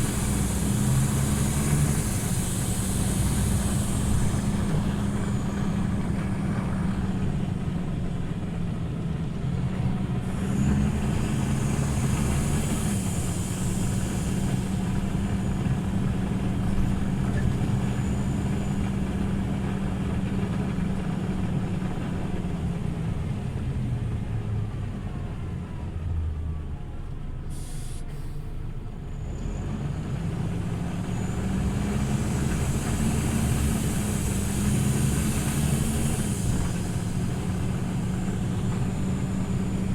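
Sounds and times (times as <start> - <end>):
air brakes hiss: 0.0 - 6.1, 10.6 - 18.8, 27.4 - 28.8, 32.4 - 39.9
bus diesel engine running: 0.0 - 39.9.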